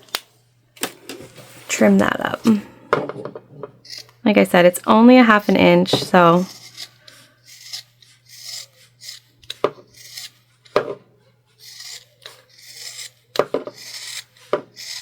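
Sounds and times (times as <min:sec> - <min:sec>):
scissors cutting fabric: 0:06.2 - 0:10.4, 0:11.6 - 0:15.0.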